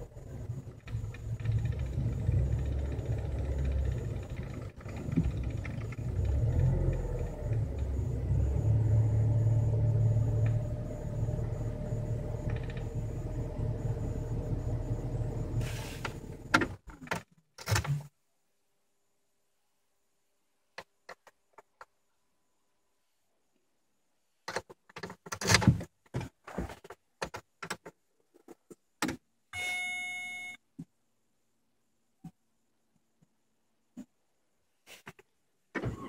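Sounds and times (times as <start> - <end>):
car engine idling: 0.0 - 16.6.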